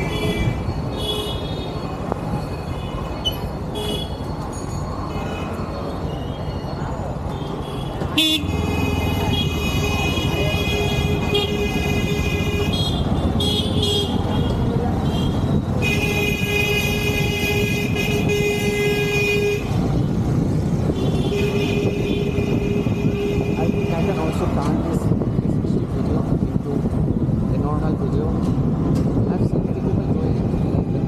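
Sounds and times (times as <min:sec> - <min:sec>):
road and wind noise: 0:00.0 - 0:31.0.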